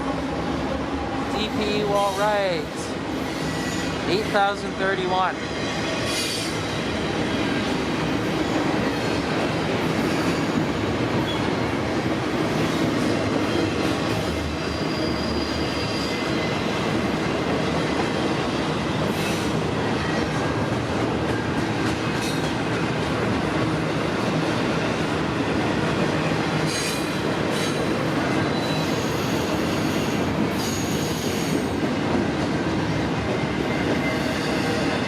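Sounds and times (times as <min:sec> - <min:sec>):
freight train wheels rattling: 0:01.4 - 0:35.0
wheel squeal: 0:03.2 - 0:04.0, 0:14.6 - 0:16.5, 0:28.4 - 0:31.7.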